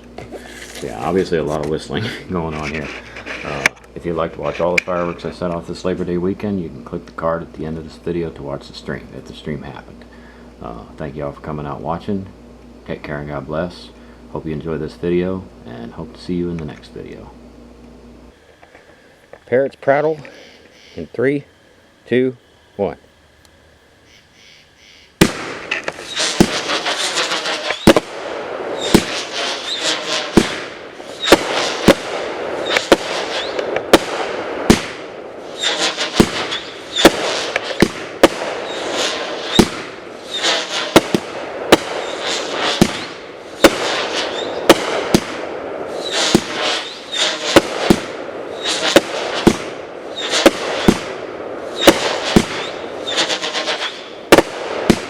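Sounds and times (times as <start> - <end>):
whistling fireworks chatter: 0.0 - 12.3, 24.1 - 55.0
firework cake shots: 25.2 - 51.2, 51.8 - 55.0.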